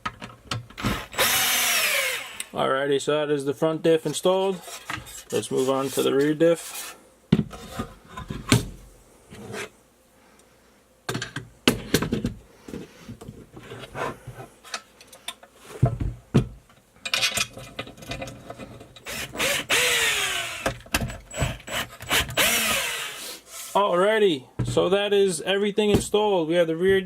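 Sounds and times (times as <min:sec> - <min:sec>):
power driver winding down: 0:01.1 - 0:02.5.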